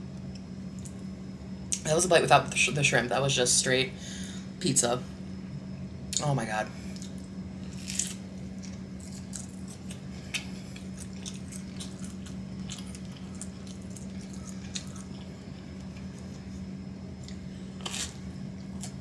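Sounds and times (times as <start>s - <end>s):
low hum: 0.0s - 19.0s
person chewing food: 6.9s - 19.0s.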